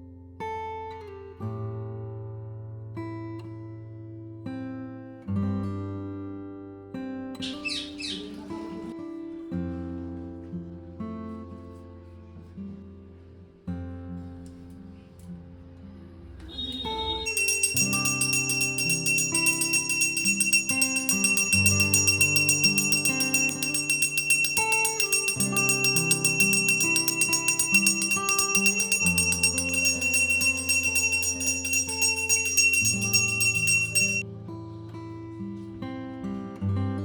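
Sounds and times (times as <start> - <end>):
bells jingling: 17.2 - 34.2
instrumental christmas-style music: 17.3 - 34.2.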